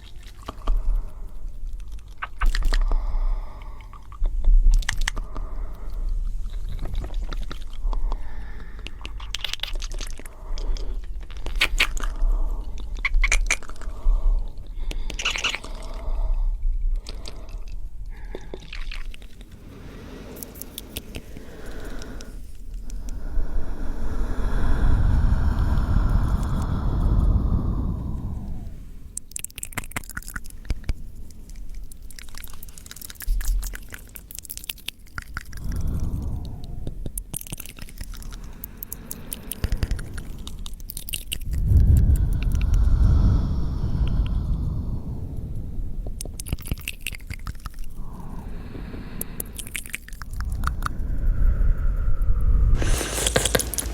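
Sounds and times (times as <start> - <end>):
wet mouth clicks and smacks: 1.7 - 3.0, 3.8 - 16.1, 16.9 - 19.6, 20.2 - 23.3, 28.4 - 42.8, 46.2 - 48.4, 49.1 - 51.3, 52.8 - 53.9.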